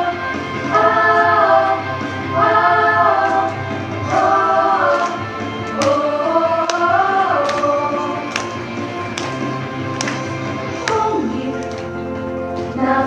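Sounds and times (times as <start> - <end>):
choir singing wordless phrases: 0.0 - 8.4, 12.7 - 13.0
low musical accompaniment: 0.0 - 13.0.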